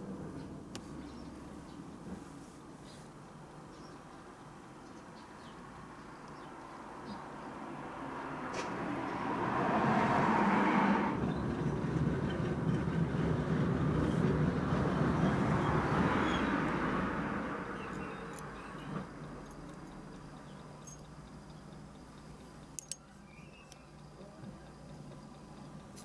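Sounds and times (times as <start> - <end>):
vehicle passing by: 7.6 - 19.2
small click: 8.5 - 8.8.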